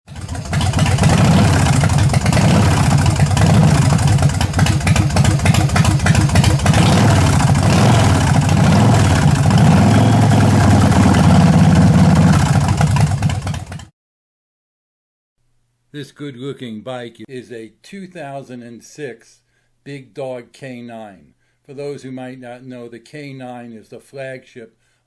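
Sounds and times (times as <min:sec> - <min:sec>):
motorcycle engine revving: 0:00.1 - 0:13.9.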